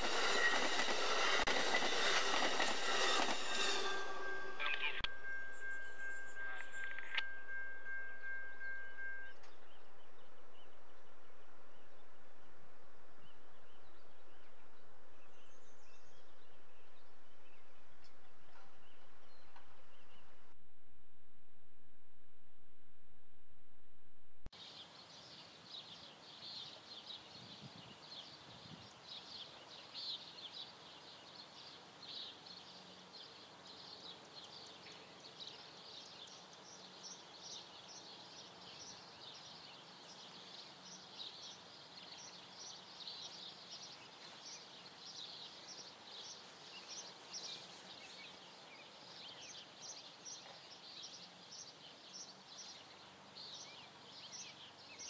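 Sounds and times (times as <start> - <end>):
faint chorus of birds chirping: 24.6 - 55.0.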